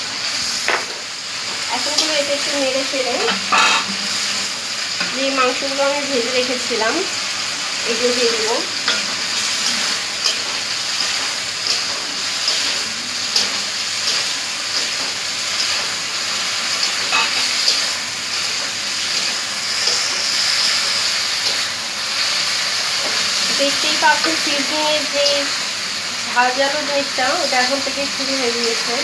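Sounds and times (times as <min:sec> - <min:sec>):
chicken sizzling in a pan: 0:00.0 - 0:29.0.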